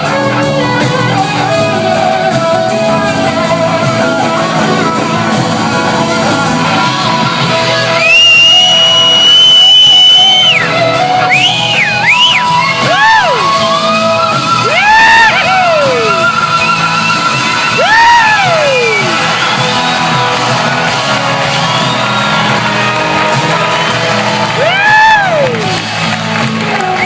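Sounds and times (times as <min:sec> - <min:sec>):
slide guitar solo: 0:00.0 - 0:08.7, 0:10.5 - 0:22.0
live band playing: 0:00.0 - 0:27.0.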